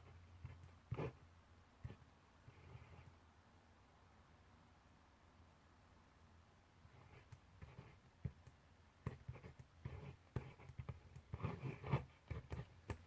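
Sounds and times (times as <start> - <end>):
pencil writing on paper: 0.0 - 3.2, 6.8 - 13.0.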